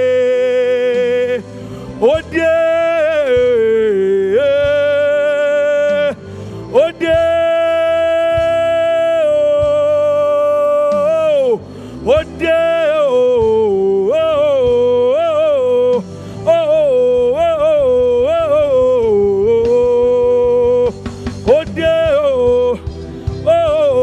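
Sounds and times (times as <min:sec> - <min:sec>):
person singing wordlessly: 0:00.0 - 0:24.0
sustained accompaniment: 0:00.0 - 0:24.0.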